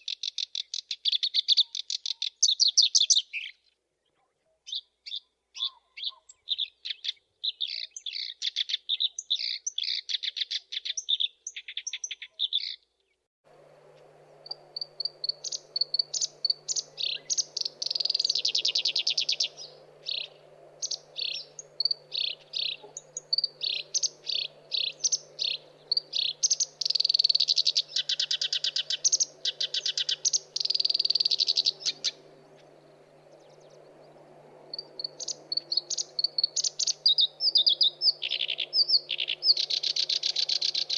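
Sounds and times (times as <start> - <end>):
warbler singing: 0.0 - 12.9, 13.6 - 40.9
faint steady hum: 13.5 - 40.9.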